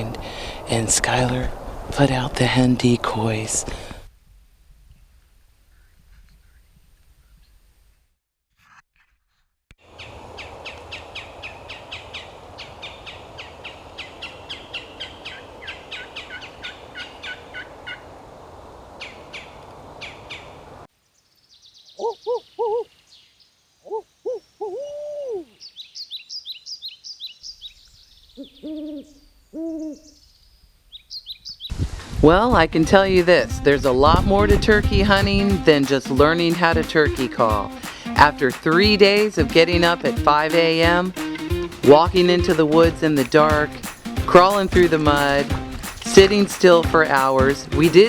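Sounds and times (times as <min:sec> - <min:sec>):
birds chirping and trilling: 0:05.7 - 0:07.6, 0:09.9 - 0:18.2, 0:18.9 - 0:31.8
owl hooting: 0:09.9 - 0:18.2, 0:18.9 - 0:20.6, 0:21.9 - 0:23.0, 0:23.8 - 0:27.3, 0:28.4 - 0:30.3.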